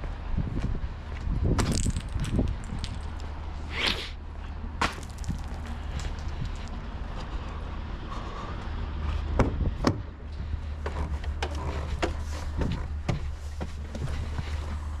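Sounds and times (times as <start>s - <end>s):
diesel engine idling: 2.3s - 15.0s.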